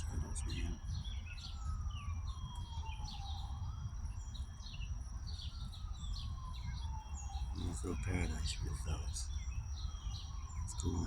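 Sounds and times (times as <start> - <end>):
steady low rumble: 0.0 - 2.8, 6.6 - 11.0
distant siren wailing: 0.0 - 11.0
small birds chirping: 0.0 - 11.0.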